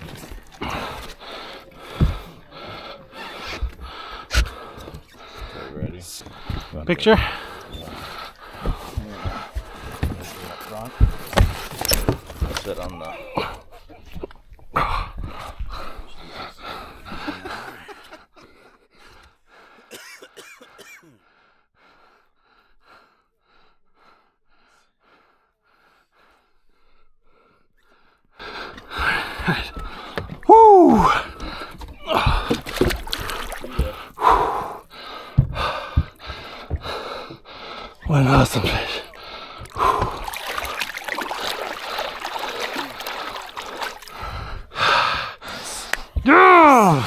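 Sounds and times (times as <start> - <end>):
water splashing and trickling: 0.0 - 5.6, 6.2 - 13.8, 28.9 - 47.0
person breathing hard: 0.0 - 12.6, 20.7 - 47.0
rush of water: 29.0 - 34.8, 38.0 - 44.9.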